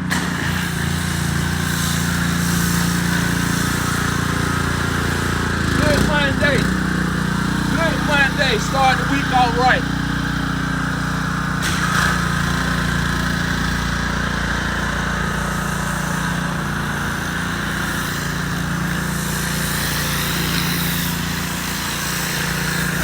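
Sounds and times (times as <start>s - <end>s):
pressure washer engine running: 0.0s - 23.0s.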